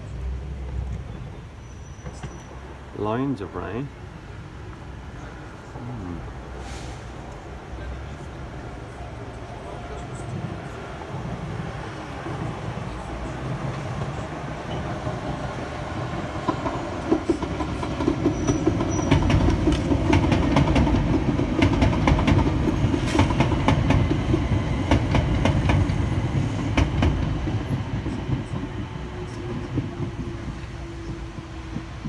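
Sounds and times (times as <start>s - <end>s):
train rumble passing: 0.0s - 32.0s
wheels clacking over rail joints: 9.6s - 32.0s.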